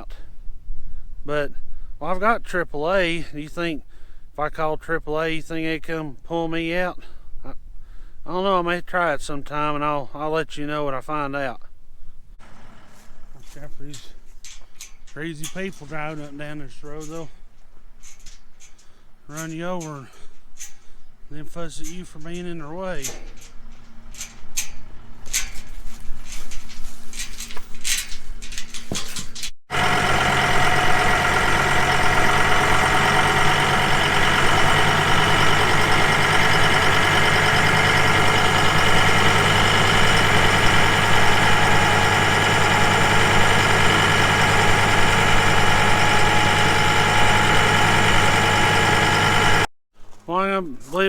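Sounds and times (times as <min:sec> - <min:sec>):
vehicle engine idling: 0:12.4 - 0:14.2, 0:29.7 - 0:49.7.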